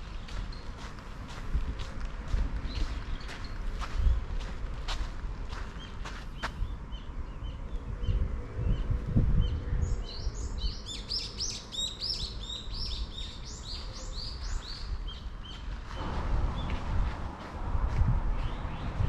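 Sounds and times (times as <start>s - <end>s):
songbird singing whistled notes: 5.8s - 15.6s
bird chirps: 8.8s - 15.7s.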